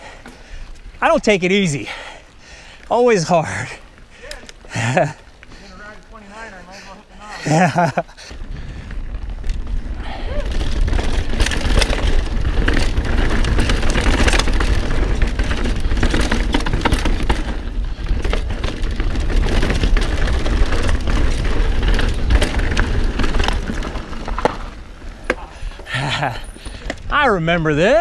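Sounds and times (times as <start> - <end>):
bike knocking and rattling: 7.5 - 28.0
tyres rolling over dirt and rock: 7.5 - 28.0
wind rumbling on microphone: 7.7 - 28.0.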